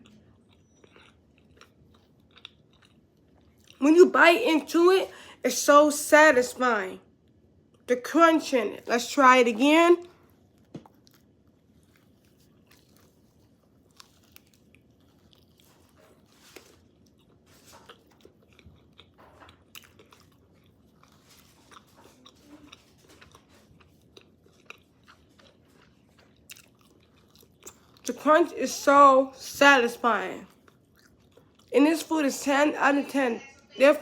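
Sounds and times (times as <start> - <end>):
crunching and chewing fried food: 0.0 - 3.8, 7.0 - 7.9, 10.0 - 28.6, 30.3 - 31.8.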